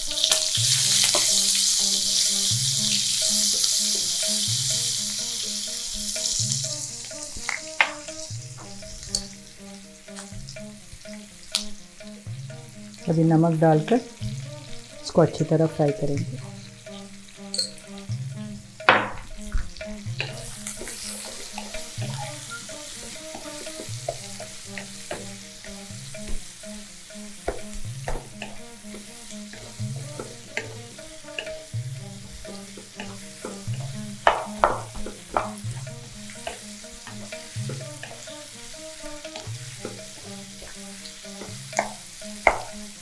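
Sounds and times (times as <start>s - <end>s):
wooden spatula scraping a wok: 0.0s - 13.1s, 14.0s - 43.0s
onions sizzling in hot oil: 0.0s - 43.0s
sharp knocks: 18.8s - 20.4s, 27.5s - 28.7s, 33.0s - 35.9s.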